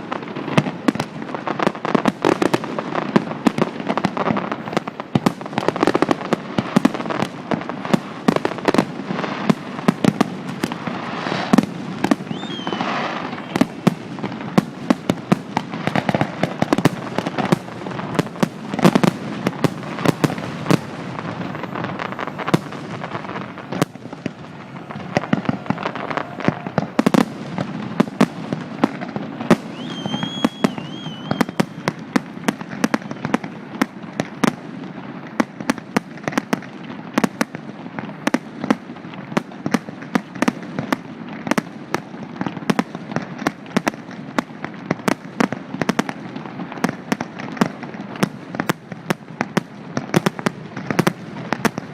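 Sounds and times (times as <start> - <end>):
fireworks bursting and crackling: 0.0 - 51.9
high firework whistles: 8.4 - 33.5.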